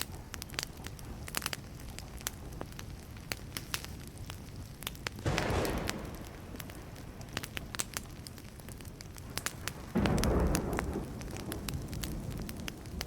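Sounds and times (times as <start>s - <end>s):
campfire crackling and popping: 0.0s - 13.0s
thunder rumbling: 5.2s - 13.0s.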